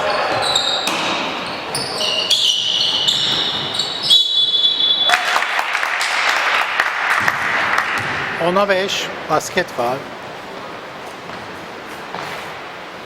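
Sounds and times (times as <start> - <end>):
sneakers squeaking on court: 0.0 - 5.1, 8.0 - 8.4, 11.1 - 12.6
crowd noise: 0.0 - 13.0
basketball bouncing: 7.1 - 8.4.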